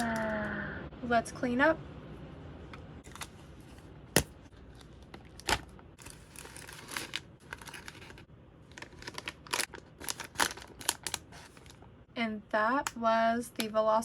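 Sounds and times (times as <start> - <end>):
plastic packaging crinkling: 4.6 - 11.9.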